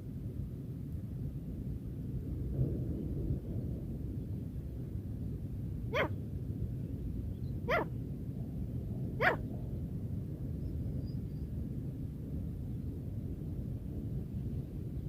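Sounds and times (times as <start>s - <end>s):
steady low rumble: 0.0s - 15.0s
francolin calls: 5.9s - 6.2s, 7.7s - 7.9s.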